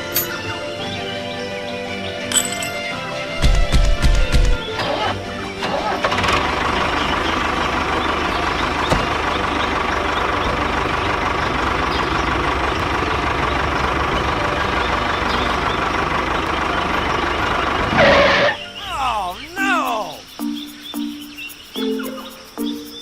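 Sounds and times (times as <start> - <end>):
engine idling: 3.4 - 19.5.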